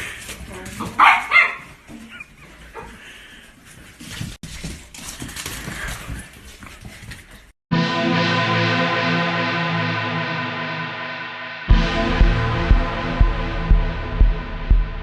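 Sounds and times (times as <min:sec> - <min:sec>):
handling and rustling noise: 0:03.5 - 0:07.5.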